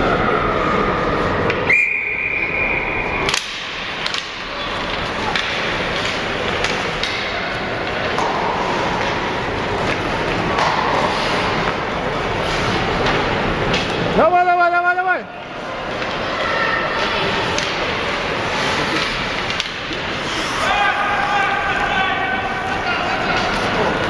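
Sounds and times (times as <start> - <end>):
rink background noise: 0.2 - 24.0
referee's whistle: 1.7 - 3.2
hockey sticks and puck clicks: 3.1 - 14.2, 15.4 - 24.0.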